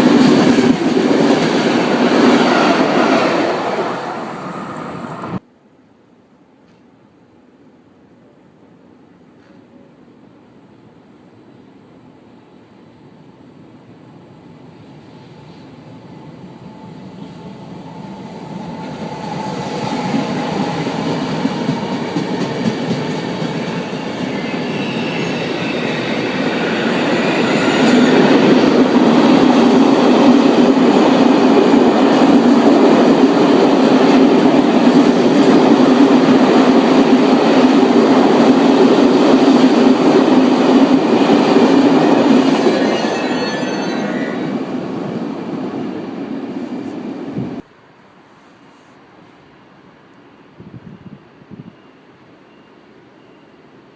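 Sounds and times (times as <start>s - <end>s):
train passing: 0.0s - 5.4s, 10.6s - 48.4s
faint high squeal: 24.0s - 28.2s, 42.4s - 44.7s, 51.0s - 53.8s.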